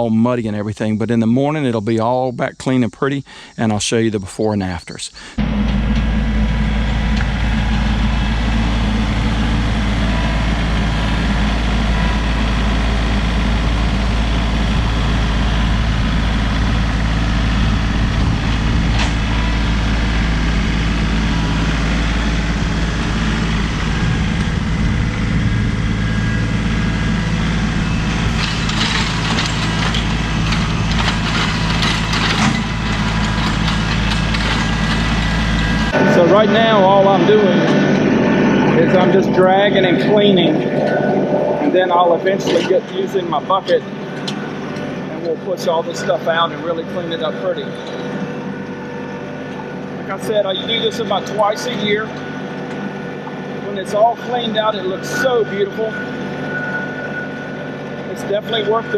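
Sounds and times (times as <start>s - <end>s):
tractor diesel engine running: 5.2s - 58.9s
rattling and crackling: 5.4s - 36.9s.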